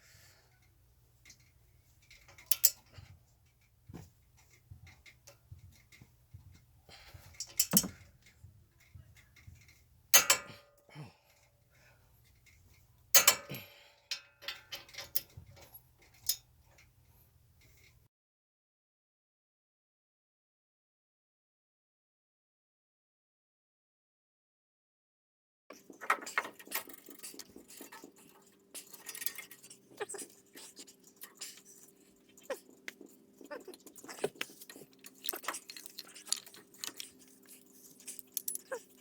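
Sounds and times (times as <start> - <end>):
metal tools clanking: 2.0 - 3.1, 6.9 - 9.0, 9.6 - 10.6, 13.2 - 16.4, 34.1 - 39.0.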